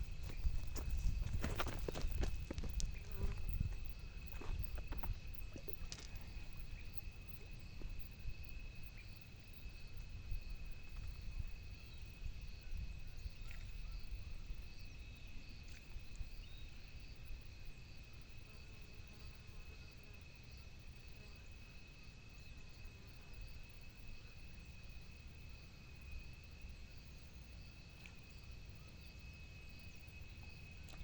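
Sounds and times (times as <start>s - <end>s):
wind rumble on microphone: 0.0s - 18.0s
high insect drone: 0.0s - 31.0s.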